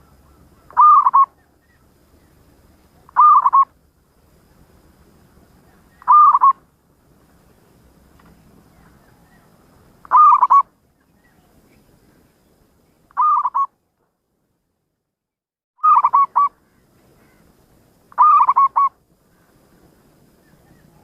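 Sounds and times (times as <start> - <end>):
dove cooing: 0.0 - 1.5, 3.0 - 3.7, 5.9 - 6.6, 9.0 - 10.7, 13.2 - 13.7, 15.8 - 16.5, 18.1 - 19.0.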